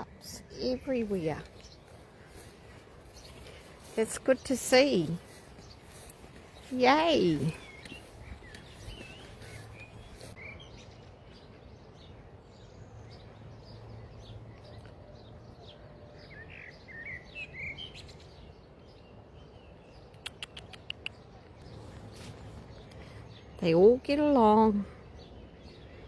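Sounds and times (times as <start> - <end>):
faint outdoor background noise: 0.0 - 26.0
small birds chirping: 0.0 - 26.0
sharp clicks: 20.1 - 21.2.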